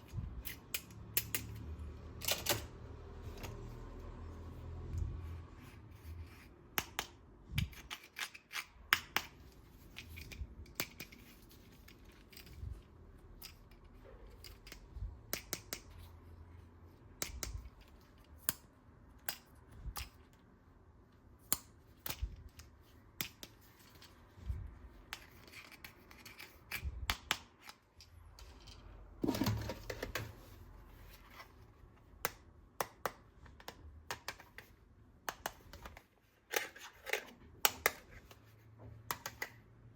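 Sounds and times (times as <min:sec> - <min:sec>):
plastic toy parts clicking: 0:13.4 - 0:16.1.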